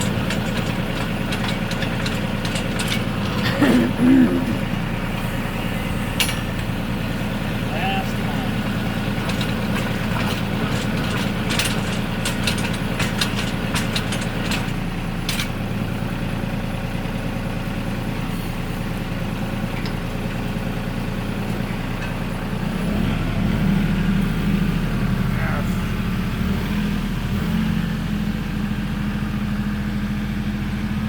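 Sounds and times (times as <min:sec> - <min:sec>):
sharp clicks and knocks: 0:00.0 - 0:04.7, 0:09.2 - 0:15.6
tractor engine running: 0:00.0 - 0:31.0.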